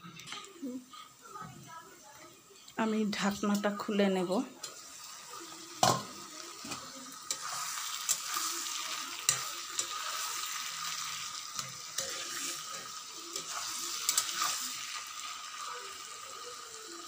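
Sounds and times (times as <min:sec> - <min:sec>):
curry sizzling in a wok: 0:00.6 - 0:17.0
metal spatula scraping a pan: 0:05.8 - 0:15.2.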